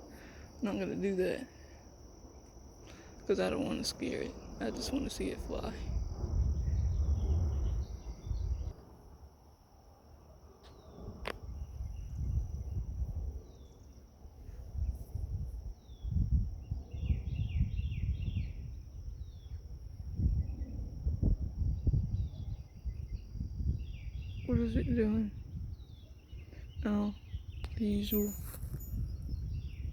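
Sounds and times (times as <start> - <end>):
high insect trill: 0.0 - 29.9
wind buffeting microphone: 4.5 - 8.8, 11.0 - 13.6, 14.4 - 29.9.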